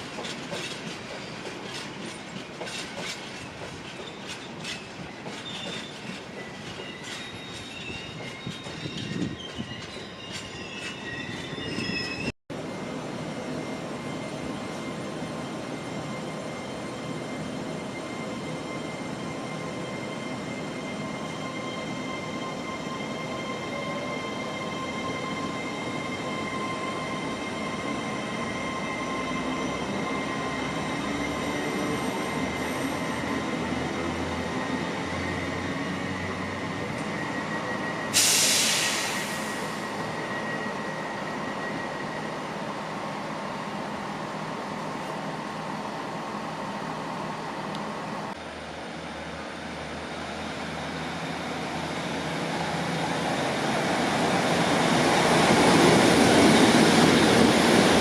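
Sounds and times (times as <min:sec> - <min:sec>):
train rumbling past: 0:00.0 - 0:58.0
high wheel squeal: 0:03.1 - 0:12.4, 0:13.6 - 0:42.6
loud burst of hiss: 0:38.1 - 0:39.8.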